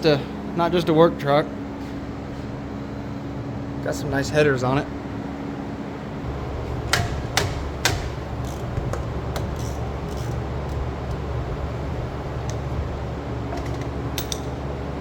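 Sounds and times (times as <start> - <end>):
steady low hum: 0.0 - 15.0
metal tools knocking: 6.3 - 11.4.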